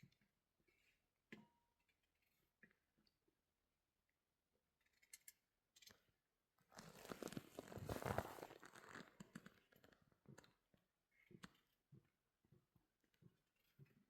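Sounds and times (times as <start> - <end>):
crackling crinkling rustle: 6.7 - 10.1.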